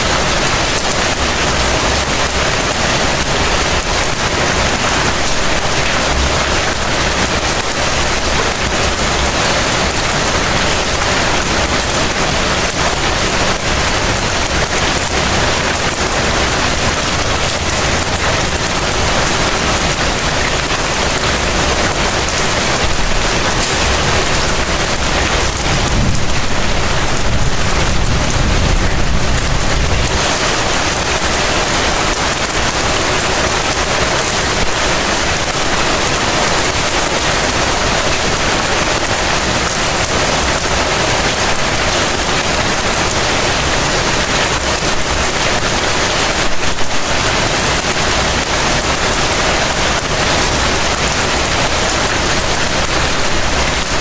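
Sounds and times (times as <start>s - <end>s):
heavy rain falling: 0.0s - 54.0s
low rumble: 25.5s - 30.2s.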